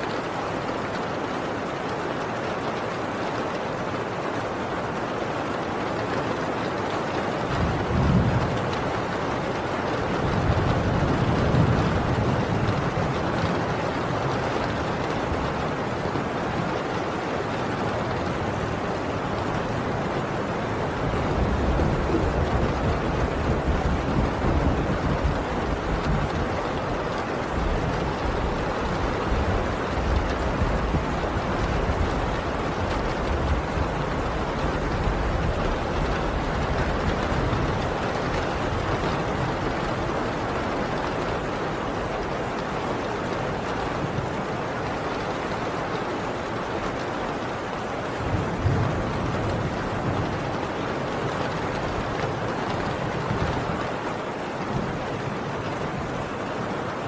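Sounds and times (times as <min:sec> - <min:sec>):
heavy rain on a tin roof: 0:00.0 - 0:57.0
distant thunder rumble: 0:07.4 - 0:44.4.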